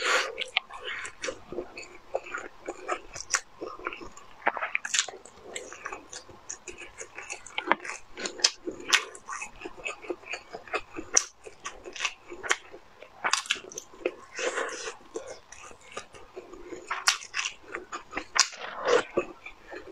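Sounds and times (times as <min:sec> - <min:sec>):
chewing and biting food: 0:00.0 - 0:19.9
wet mouth clicks and smacks: 0:14.8 - 0:19.6.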